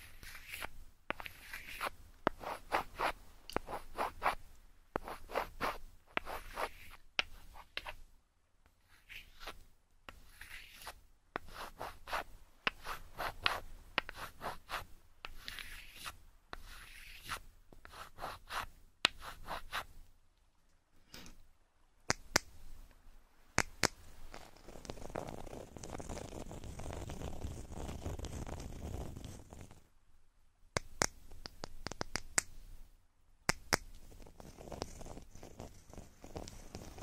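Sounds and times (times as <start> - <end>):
fingers scratching a microphone: 0.0 - 4.4, 5.0 - 8.0, 8.9 - 19.9, 24.2 - 29.8, 34.0 - 37.0.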